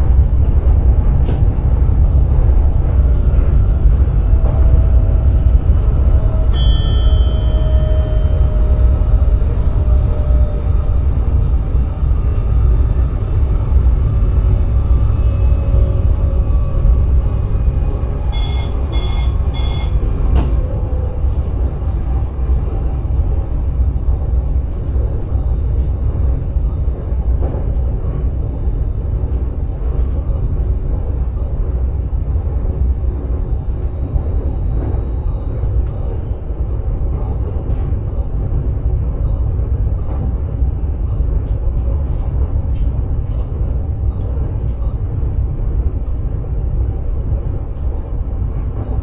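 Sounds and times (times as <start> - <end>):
train rumbling: 0.0 - 49.0
short electronic beeps: 18.4 - 19.9.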